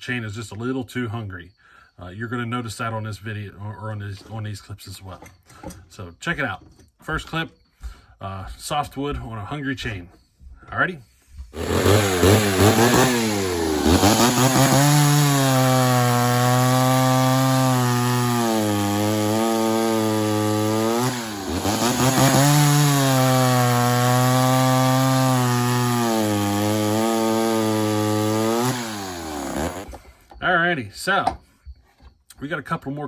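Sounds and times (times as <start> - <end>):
chainsaw cutting wood: 11.5 - 30.3.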